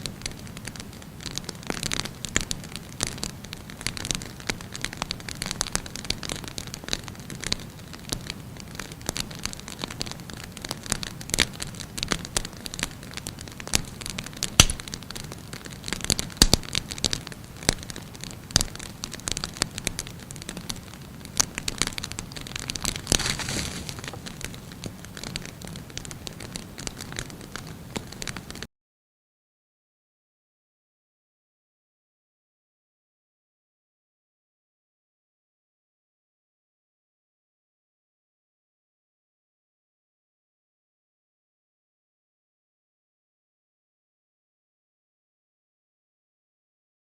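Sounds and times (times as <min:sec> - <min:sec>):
wood fire crackling and popping: 0:00.0 - 0:28.7
fire hissing: 0:13.8 - 0:28.6.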